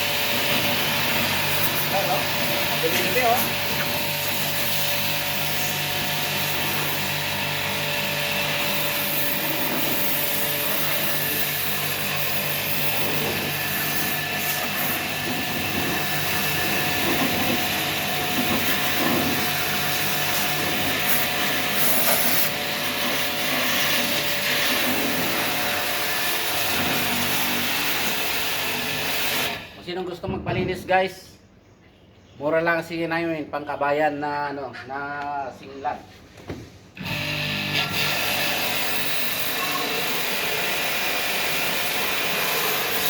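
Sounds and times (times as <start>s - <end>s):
pressure washer spray hissing: 0.0s - 29.5s, 38.2s - 43.0s.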